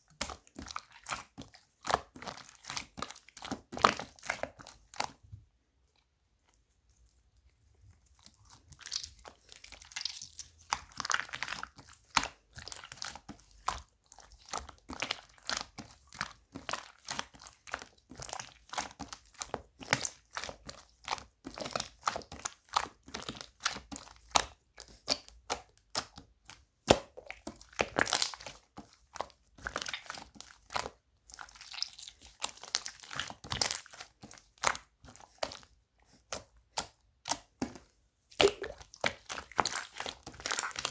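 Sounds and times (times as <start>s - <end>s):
slime crackling and popping: 26.8s - 28.5s, 38.4s - 40.9s.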